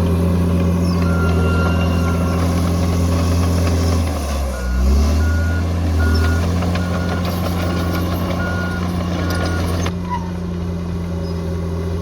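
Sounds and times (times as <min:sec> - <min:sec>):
diesel bulldozer engine running: 0:00.0 - 0:12.0
reversing alarm beeping: 0:01.0 - 0:03.2, 0:04.5 - 0:09.9.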